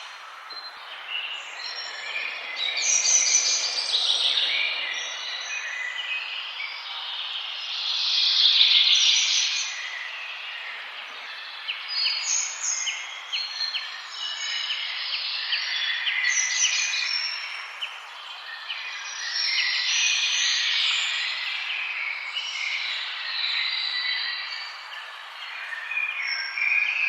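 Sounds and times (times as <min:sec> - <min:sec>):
birds singing and chirping: 0:00.0 - 0:07.7, 0:08.6 - 0:27.0.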